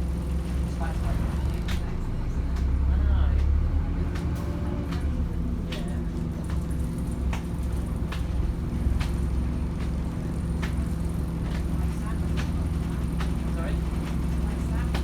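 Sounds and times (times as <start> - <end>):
bus body rattles and clicks: 0.0 - 15.0
bus diesel engine drone: 0.0 - 15.0.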